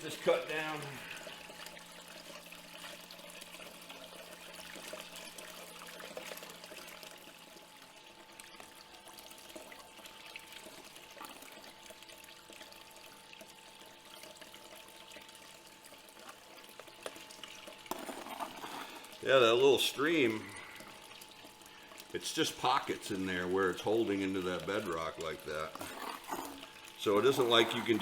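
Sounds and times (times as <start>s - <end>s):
faint steady hum: 0.0s - 28.0s
water pouring through sluice: 0.0s - 28.0s.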